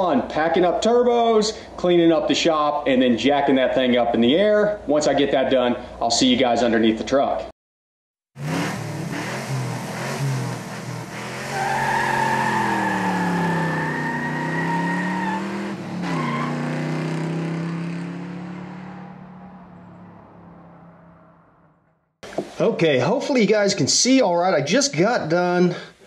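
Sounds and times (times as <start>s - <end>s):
car engine revving: 8.4s - 21.8s.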